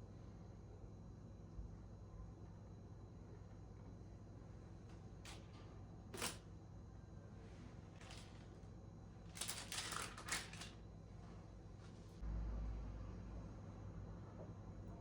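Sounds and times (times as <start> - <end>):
clicks of small objects: 6.2 - 6.4.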